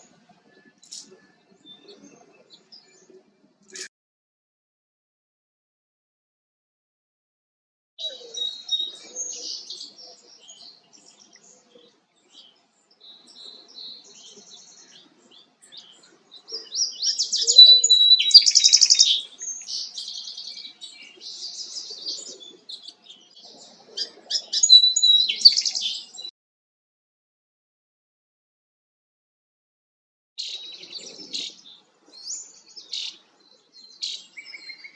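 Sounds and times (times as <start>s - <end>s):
songbird singing: 0.0s - 3.9s, 8.0s - 26.3s, 30.4s - 34.9s.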